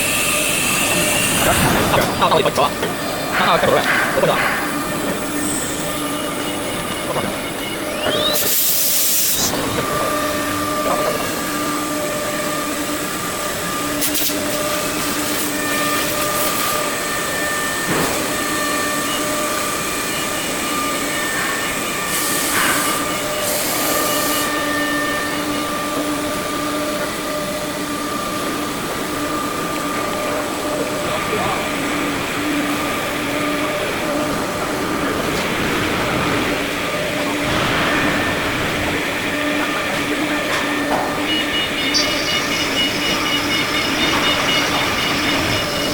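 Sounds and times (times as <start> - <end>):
machine axis drives whining: 0.0 - 45.9
hissing air bursts: 8.3 - 13.1, 13.7 - 26.0.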